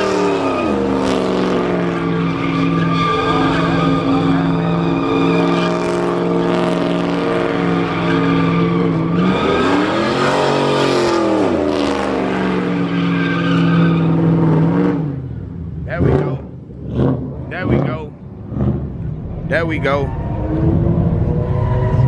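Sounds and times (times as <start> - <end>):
car engine at high revs: 0.0 - 22.0
tyres squealing: 1.6 - 6.5, 7.3 - 10.8.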